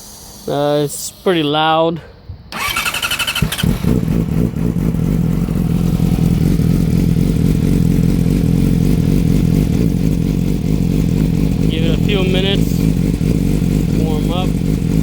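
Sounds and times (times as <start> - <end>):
engine starter cranking: 2.5 - 4.0
motorcycle engine idling loudly: 2.6 - 15.0.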